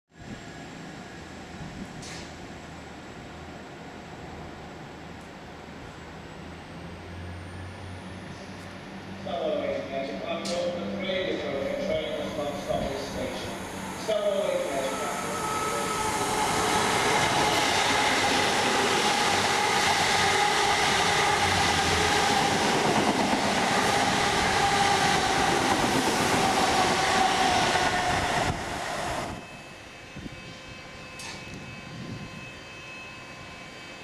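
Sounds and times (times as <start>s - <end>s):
train wheels rushing on rails: 6.6s - 32.8s.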